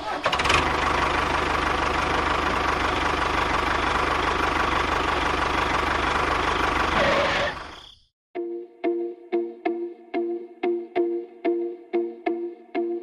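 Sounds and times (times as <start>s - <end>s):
small tractor engine running: 0.0s - 7.7s.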